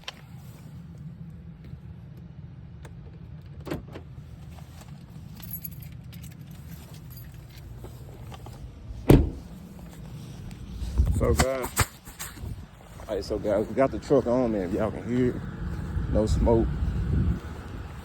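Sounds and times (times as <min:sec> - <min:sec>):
keys jangling: 0:04.9 - 0:08.6
truck engine idling: 0:06.4 - 0:11.4, 0:12.0 - 0:18.0
loud thump: 0:09.0 - 0:09.5.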